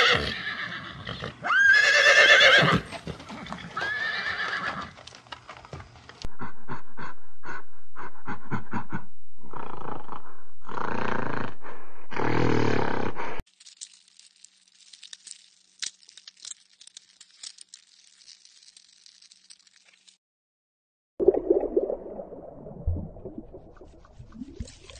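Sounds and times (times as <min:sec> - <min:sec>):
faint wet clicks and squishing: 0:13.5 - 0:20.2.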